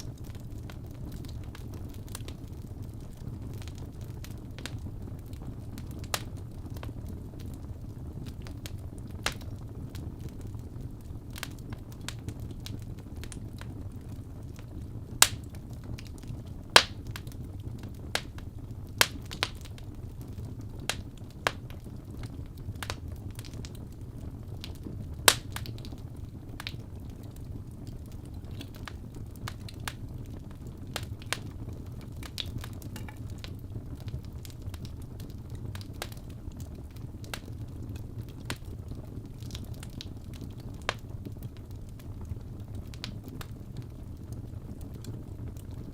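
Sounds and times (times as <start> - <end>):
burning logs crackling and popping: 0.0 - 45.9
low rumble of flames: 0.0 - 45.9.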